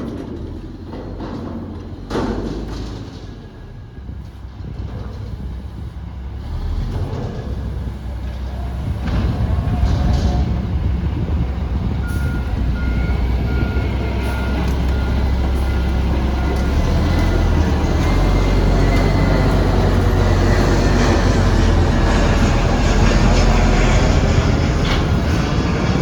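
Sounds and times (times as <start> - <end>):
garbage truck diesel engine: 0.0 - 26.0
backup alarm beeping: 12.0 - 20.1.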